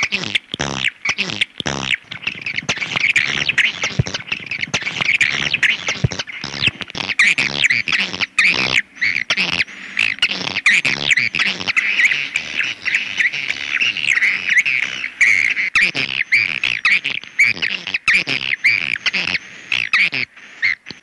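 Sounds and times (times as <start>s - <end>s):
swiftlets chirping and twittering: 2.0s - 20.2s.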